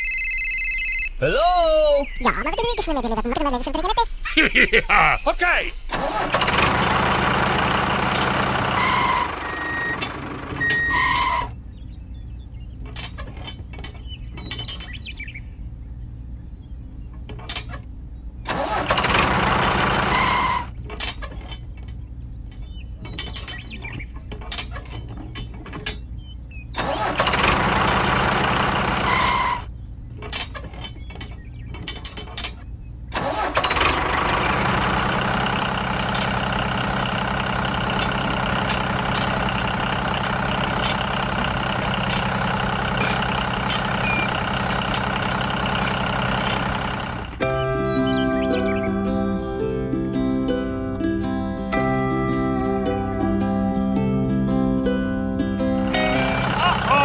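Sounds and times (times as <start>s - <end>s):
model tractor engine hum: 5.9s - 11.6s, 18.5s - 21.2s, 26.8s - 29.7s, 33.1s - 57.0s
metal hitch pins clicking: 33.2s - 47.4s.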